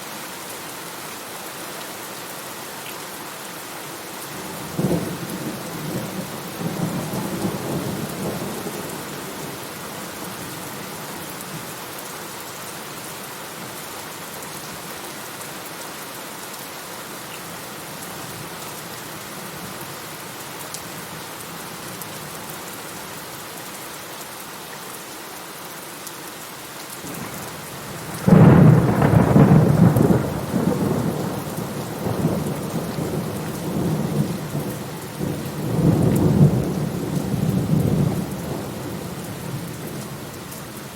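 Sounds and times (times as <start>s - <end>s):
steady rain: 0.0s - 40.9s
thunder crashing and rumbling: 28.0s - 34.6s.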